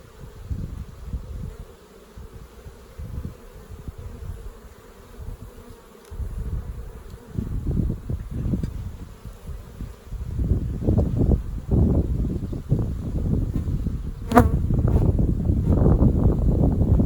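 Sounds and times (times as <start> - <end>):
low rumbles and bumps: 13.4 - 16.4
bees buzzing: 13.5 - 16.0.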